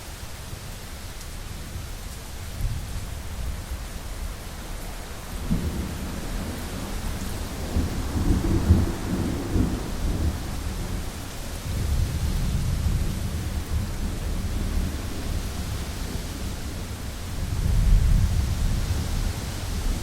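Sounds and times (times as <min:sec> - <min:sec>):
heavy rain on window: 0:00.0 - 0:20.0
deep rolling thunder: 0:05.4 - 0:20.0.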